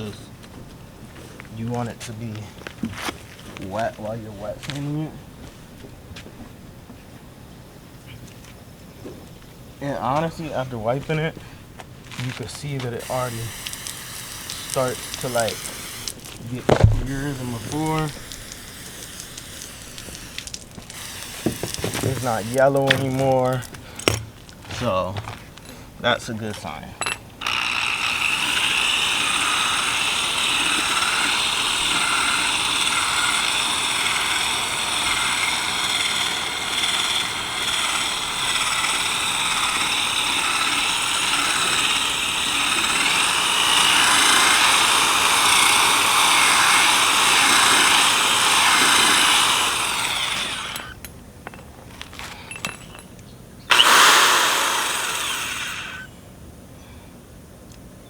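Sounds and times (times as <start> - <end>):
drill spinning sanding disc: 0.0 - 0.5, 9.8 - 24.9, 27.4 - 51.0, 53.7 - 56.1.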